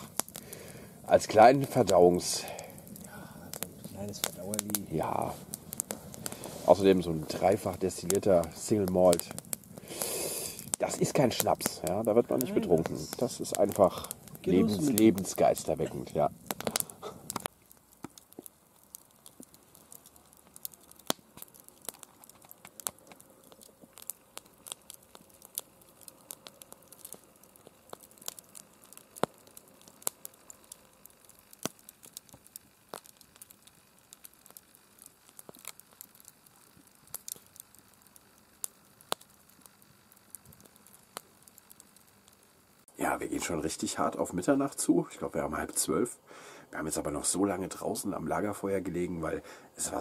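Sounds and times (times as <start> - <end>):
campfire crackling: 0.0 - 50.0.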